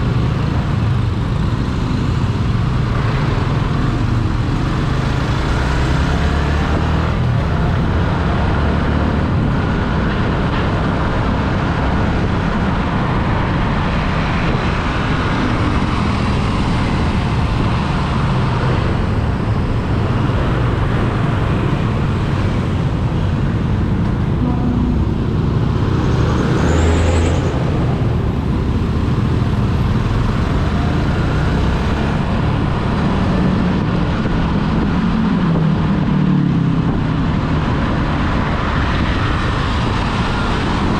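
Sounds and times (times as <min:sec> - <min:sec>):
road traffic noise: 0:00.0 - 0:40.9
vehicle passing close by: 0:20.0 - 0:32.8.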